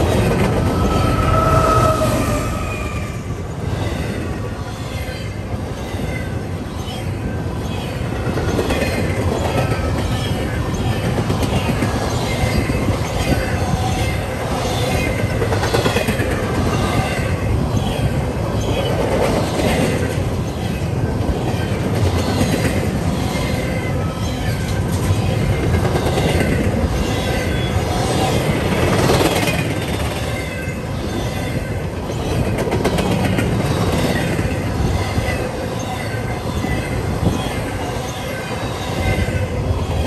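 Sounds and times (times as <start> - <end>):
freight train wheels rumbling: 0.0 - 40.0.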